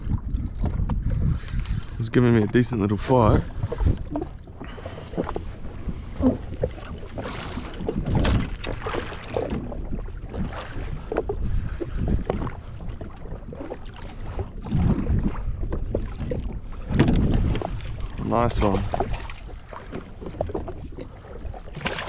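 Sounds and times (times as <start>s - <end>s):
water lapping against a hull: 0.0s - 22.0s
wind buffeting microphone: 0.0s - 22.0s.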